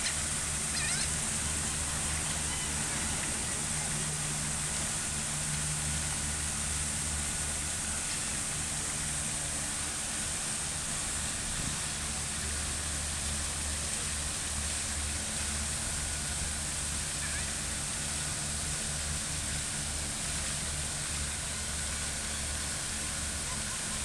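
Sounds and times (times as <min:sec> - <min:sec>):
fountain water splashing: 0:00.0 - 0:24.0.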